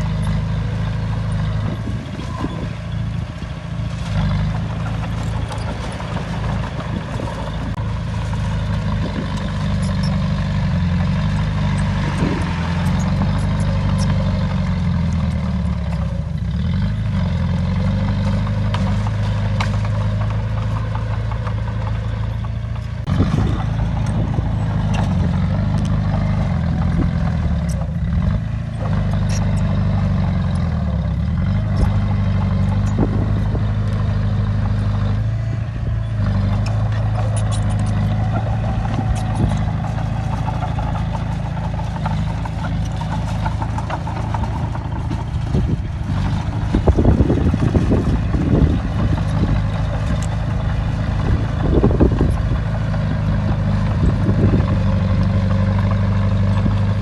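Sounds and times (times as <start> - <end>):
heavy diesel engine working: 0.0 - 57.0
metallic clatter: 36.1 - 53.1.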